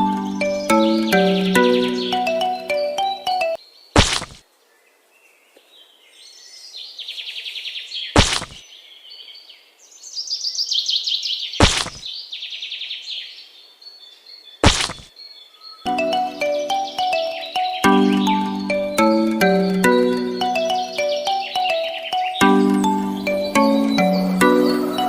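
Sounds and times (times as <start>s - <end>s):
birds chirping in trills: 0.0s - 4.3s, 7.6s - 25.0s
sharp knock: 4.0s - 4.4s, 8.2s - 8.6s, 11.6s - 12.0s, 14.6s - 15.1s.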